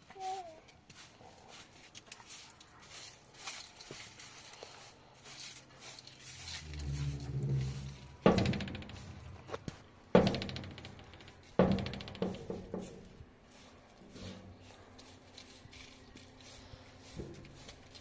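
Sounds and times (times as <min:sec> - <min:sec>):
heavy knocks with rattle: 0:06.6 - 0:13.2.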